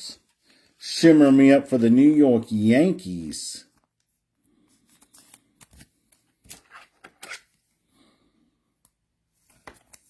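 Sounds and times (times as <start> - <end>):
trading cards clicking and rustling: 4.9 - 7.5.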